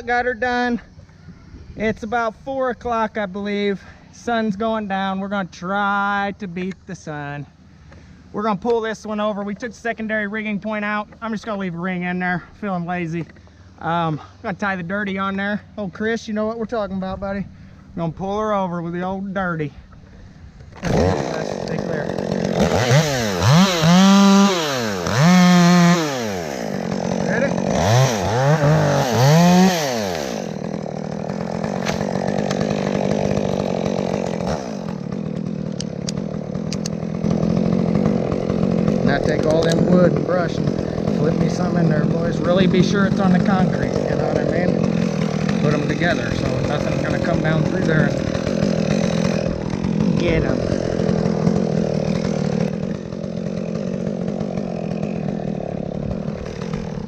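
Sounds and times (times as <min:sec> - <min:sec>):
chainsaw running: 0:19.9 - 0:57.0
sharp clicks: 0:35.3 - 0:37.0.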